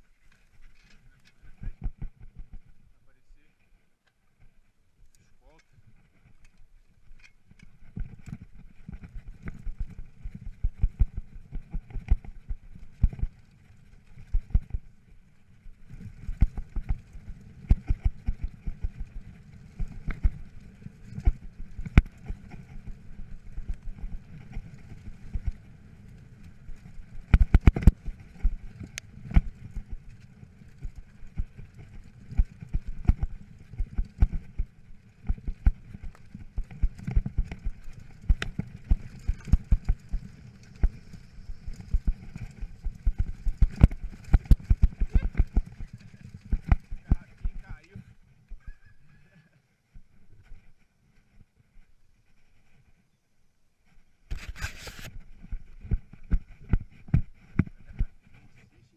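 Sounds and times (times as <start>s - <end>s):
bike tyres rumbling on rough ground: 0.0s - 3.0s, 5.4s - 52.9s, 53.9s - 58.9s.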